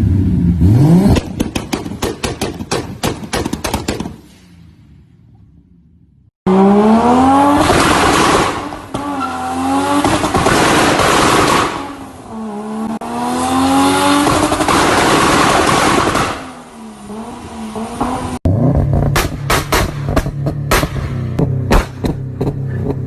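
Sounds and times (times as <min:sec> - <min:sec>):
car engine revving hard: 0:00.6 - 0:01.3, 0:06.5 - 0:19.4.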